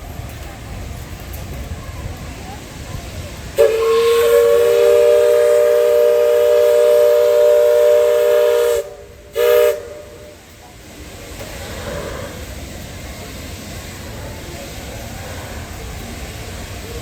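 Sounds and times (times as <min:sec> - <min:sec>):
ship's horn blasts: 0:03.6 - 0:10.2.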